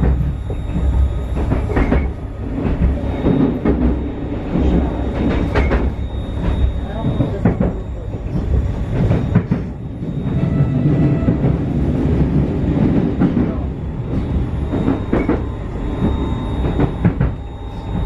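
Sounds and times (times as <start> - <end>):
faint steady whine: 0.0 - 10.4
clacks over rail joints: 0.0 - 11.6, 12.7 - 17.4
train wheel rumble: 0.0 - 18.0.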